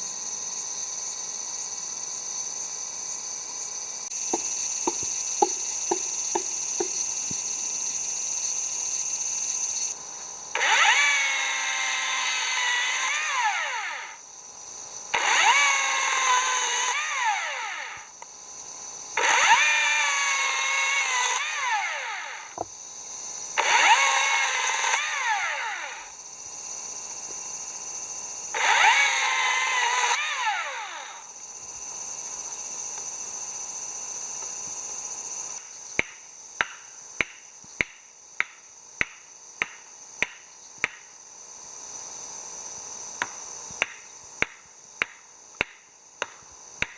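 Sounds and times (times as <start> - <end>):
power drill running: 10.5 - 14.2, 15.1 - 18.1, 19.2 - 22.6, 23.6 - 26.2, 28.5 - 31.3.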